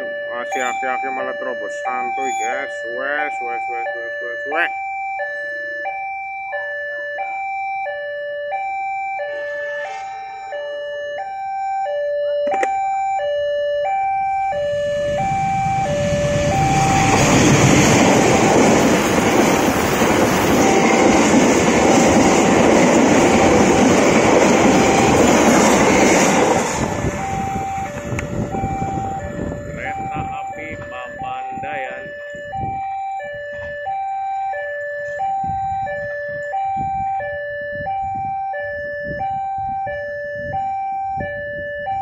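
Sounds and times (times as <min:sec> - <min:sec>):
level crossing two-tone chime: 0:00.4 - 0:05.6
train passing with wheel noise: 0:09.4 - 0:10.4, 0:15.0 - 0:32.0.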